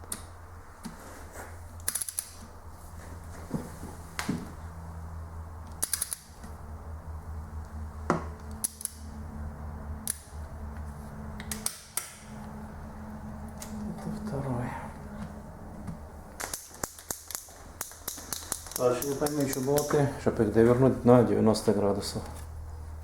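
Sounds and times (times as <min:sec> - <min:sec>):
low steady hum: 0:00.0 - 0:23.0
torque wrench clicking: 0:05.7 - 0:06.3, 0:08.4 - 0:09.1, 0:16.4 - 0:20.0.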